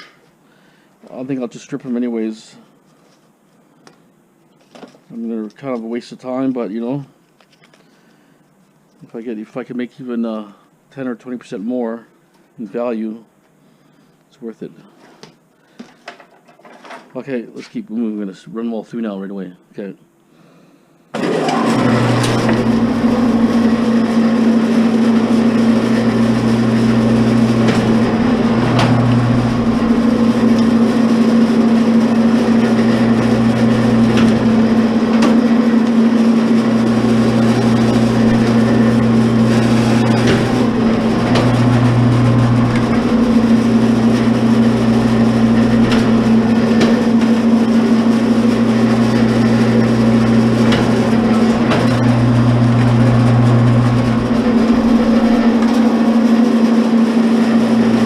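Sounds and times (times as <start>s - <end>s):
electric wire stripper humming: 21.2s - 58.0s.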